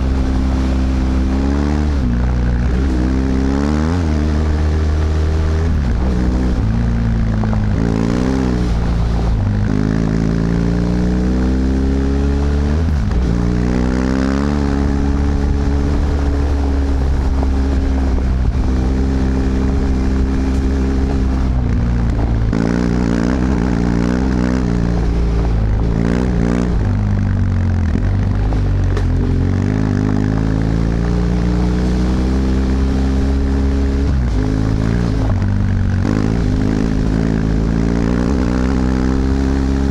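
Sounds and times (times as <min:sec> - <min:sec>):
motorcycle engine under way: 0:00.0 - 0:39.9
wind and road noise: 0:00.0 - 0:39.9.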